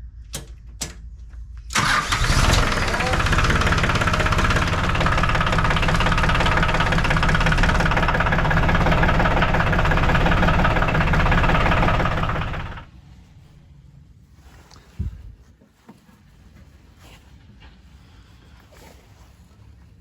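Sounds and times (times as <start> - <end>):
diesel tractor engine idling: 1.7 - 12.9.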